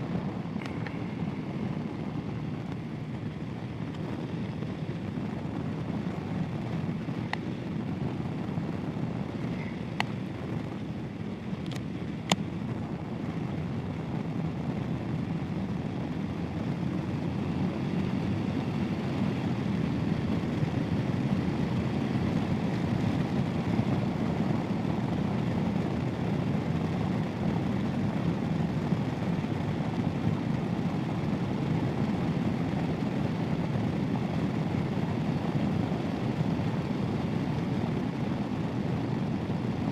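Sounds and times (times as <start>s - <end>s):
rushing wind: 0.0s - 39.9s.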